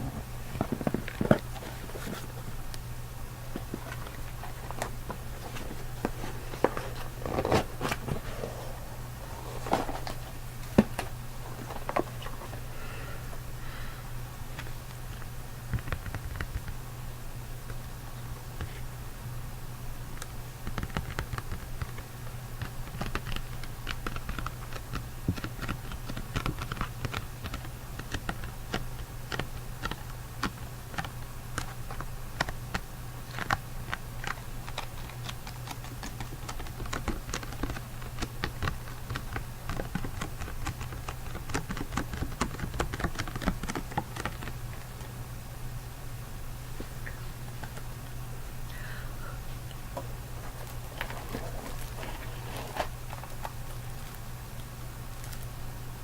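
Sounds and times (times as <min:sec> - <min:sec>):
steady low hum: 0:00.0 - 0:56.0
rapid small clicks and ticks: 0:14.5 - 0:16.9, 0:20.1 - 0:45.2, 0:50.6 - 0:55.6.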